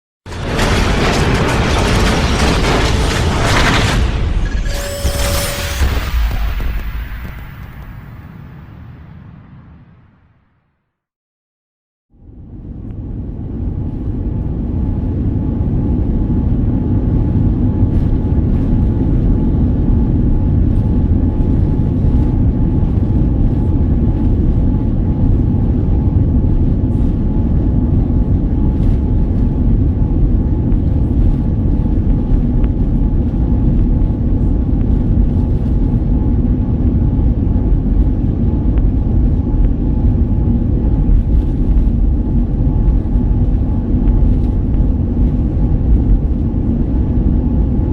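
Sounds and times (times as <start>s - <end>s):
jet engines rumbling: 12.6s - 47.9s.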